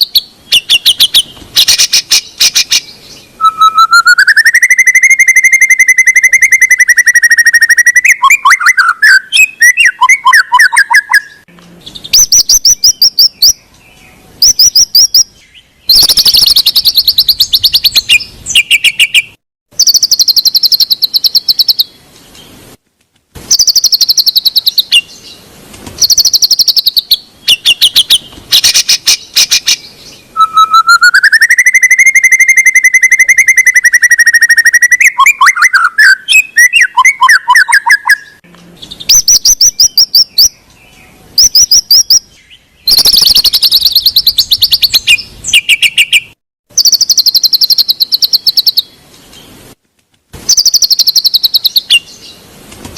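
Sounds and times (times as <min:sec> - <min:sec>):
bird trills and chattering: 0:00.0 - 0:13.6, 0:15.9 - 0:21.9, 0:23.5 - 0:25.2, 0:26.0 - 0:40.5, 0:42.9 - 0:48.9, 0:50.5 - 0:52.2
rising bird whistle: 0:00.0 - 0:13.6, 0:15.9 - 0:21.9, 0:23.5 - 0:25.1, 0:26.0 - 0:29.8, 0:30.4 - 0:38.4, 0:42.9 - 0:48.9, 0:50.5 - 0:52.1.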